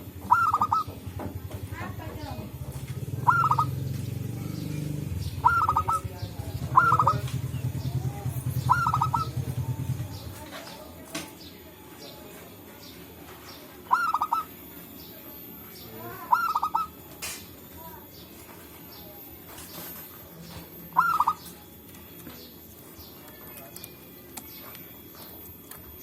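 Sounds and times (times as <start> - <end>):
low pulsing hum: 0.0 - 10.4
doves cooing: 0.0 - 10.9, 13.4 - 17.3, 19.5 - 26.0.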